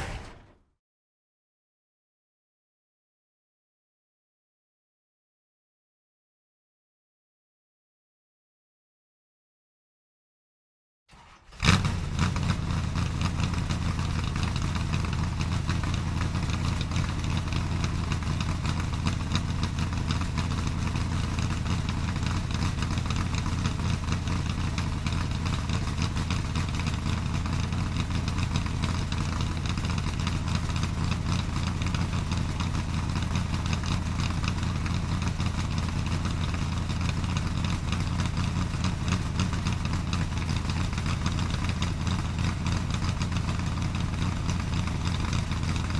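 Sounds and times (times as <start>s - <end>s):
vehicle engine idling: 0.0s - 0.6s, 11.1s - 45.9s.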